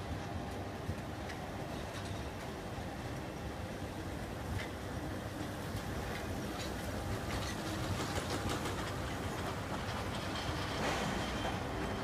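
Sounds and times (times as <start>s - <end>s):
wheels clicking over rail joints: 0.0s - 3.5s, 4.4s - 12.0s
train rumbling past: 0.0s - 12.0s.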